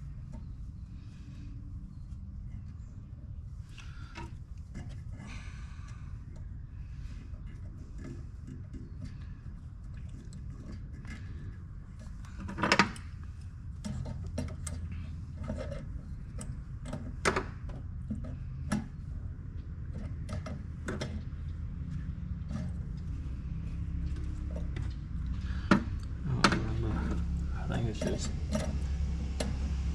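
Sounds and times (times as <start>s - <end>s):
steady low hum: 0.0s - 29.9s
hand tools clicking and knocking: 25.6s - 29.6s.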